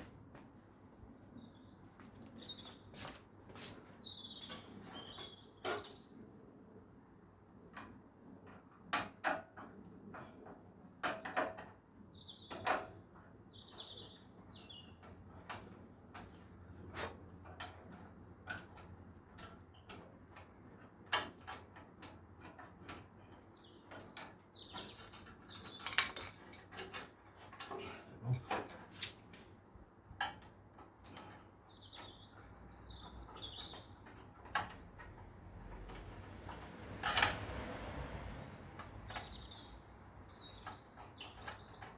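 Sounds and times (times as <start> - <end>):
birds chirping: 1.1 - 6.1, 23.2 - 26.6, 31.1 - 34.3, 38.4 - 41.9.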